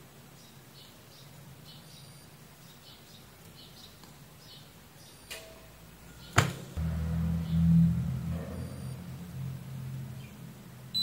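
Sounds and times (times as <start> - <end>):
faint bird chirps: 0.4 - 6.4
low steady hum: 4.8 - 11.0.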